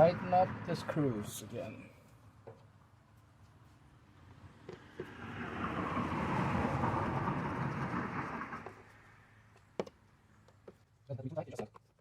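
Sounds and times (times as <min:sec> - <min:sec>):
vehicle passing by: 0:00.0 - 0:01.8, 0:03.9 - 0:09.4.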